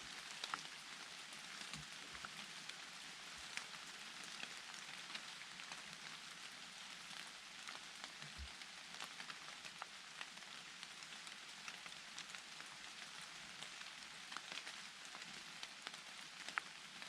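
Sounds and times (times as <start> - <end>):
rain falling in a forest: 0.0 - 17.0.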